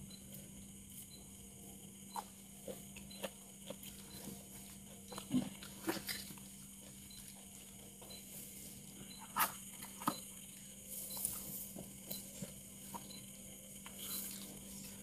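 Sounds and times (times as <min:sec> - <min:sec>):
faint steady hum: 0:00.0 - 0:15.0
chewing food: 0:02.1 - 0:08.3.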